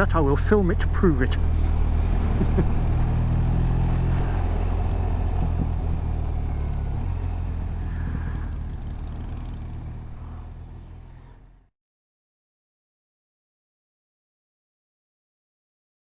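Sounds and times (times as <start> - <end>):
motorcycle engine running: 0.0 - 11.7
road and wind noise: 0.0 - 11.7.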